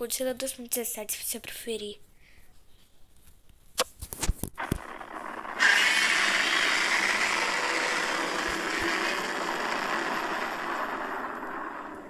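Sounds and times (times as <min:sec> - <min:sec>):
monster roar: 0:04.6 - 0:12.0.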